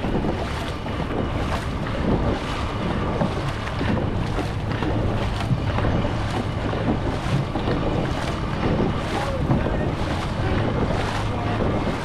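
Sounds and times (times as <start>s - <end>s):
paddle strokes: 0.0s - 12.0s
water rushing and splashing: 0.0s - 12.0s
wind buffeting microphone: 0.0s - 12.0s.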